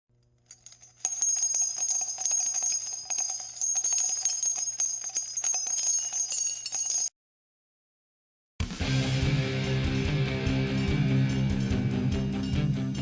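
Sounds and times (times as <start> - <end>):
small bells jingling: 0.4 - 7.2.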